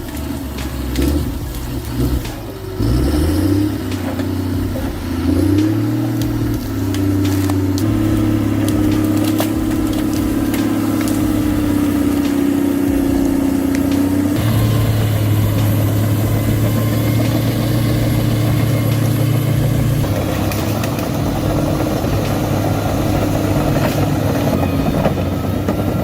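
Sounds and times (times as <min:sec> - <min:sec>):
heavy vehicle engine revving: 0:00.0 - 0:26.0
sharp cracks and clicks: 0:00.0 - 0:26.0.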